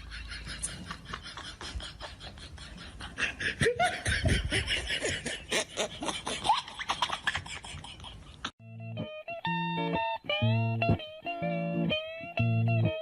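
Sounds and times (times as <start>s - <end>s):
person laughing: 0.0s - 8.5s.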